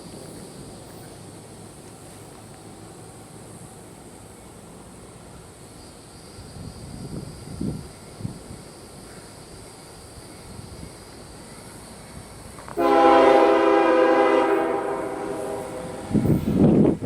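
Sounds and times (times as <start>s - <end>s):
locomotive air horn blast: 12.8s - 16.6s.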